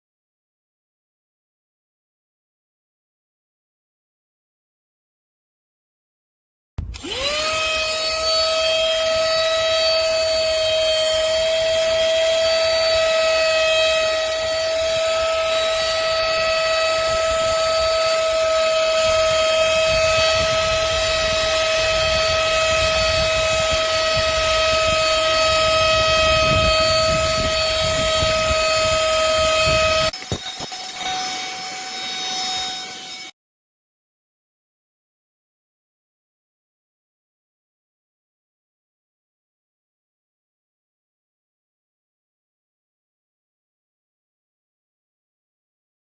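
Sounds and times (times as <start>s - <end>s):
vacuum motor whining: 6.8s - 33.3s.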